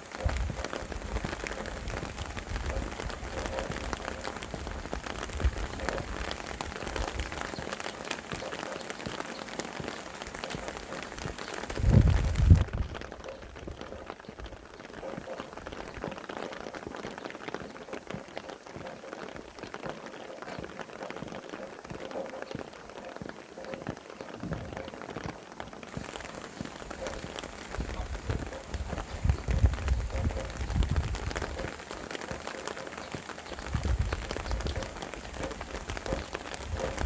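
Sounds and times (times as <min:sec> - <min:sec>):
rain falling on surfaces: 0:00.0 - 0:37.0
low rumble of wind: 0:00.1 - 0:07.7, 0:10.8 - 0:14.7, 0:26.2 - 0:32.1, 0:33.4 - 0:37.0.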